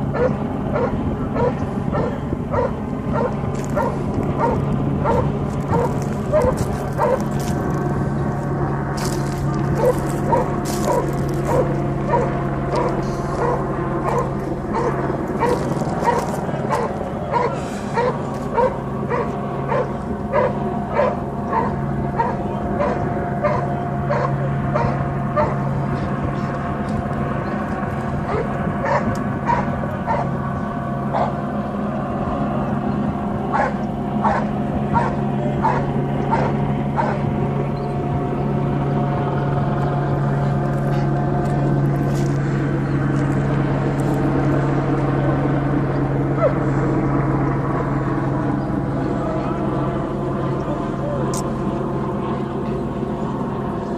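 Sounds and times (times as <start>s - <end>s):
steady low drone: 0.0s - 53.9s
dog barking: 0.1s - 7.3s, 9.8s - 25.6s, 28.3s - 30.3s, 31.1s - 31.4s, 33.5s - 37.2s.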